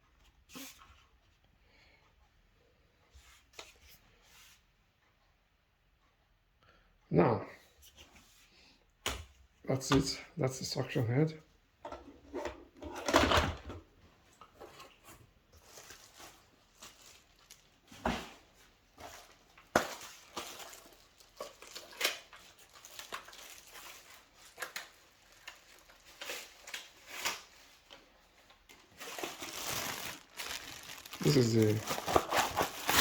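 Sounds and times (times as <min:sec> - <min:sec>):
packaging rustling: 0:14.7 - 0:33.0.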